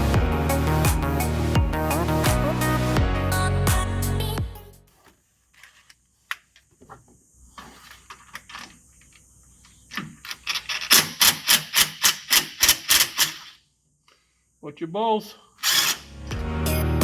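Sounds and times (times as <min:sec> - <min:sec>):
sharp ratcheting clacks: 0:10.2 - 0:13.6, 0:15.6 - 0:16.0.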